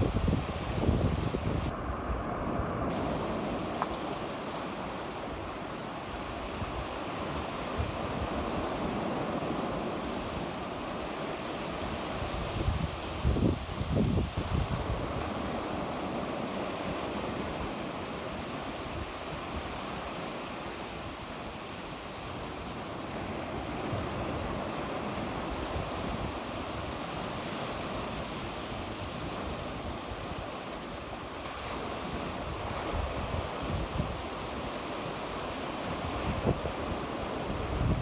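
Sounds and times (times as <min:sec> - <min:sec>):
wind on microphone: 0:00.0 - 0:18.0, 0:31.5 - 0:38.0
sea waves washing onto shore: 0:00.0 - 0:38.0.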